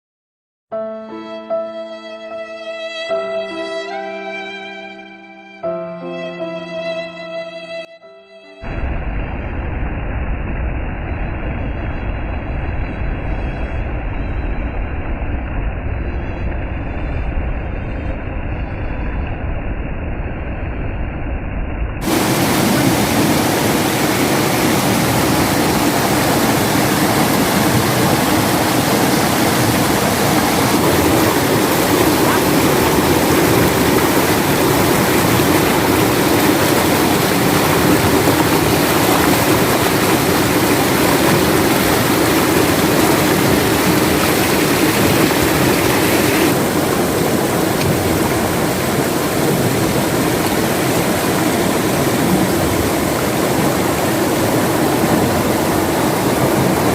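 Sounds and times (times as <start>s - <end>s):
water rushing: 22.0s - 56.9s.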